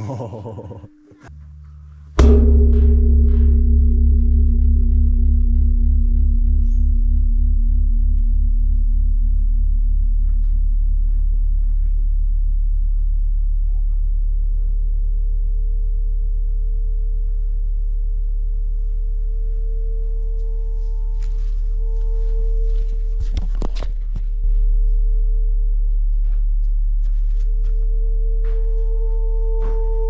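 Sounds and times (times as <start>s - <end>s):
sharp knocks: 2.2s - 8.4s
gong ringing: 2.2s - 10.8s.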